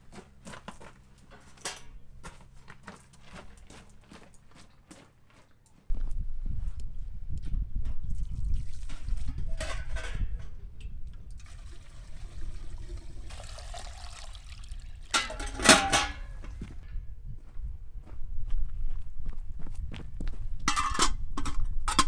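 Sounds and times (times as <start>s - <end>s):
water pouring and splashing: 8.2s - 9.6s, 11.4s - 15.9s.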